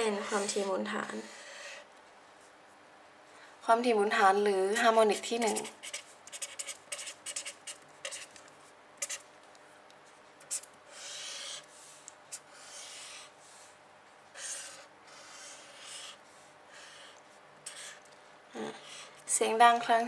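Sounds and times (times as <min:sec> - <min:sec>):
pen scratching strokes: 0:05.1 - 0:08.4, 0:09.0 - 0:09.2.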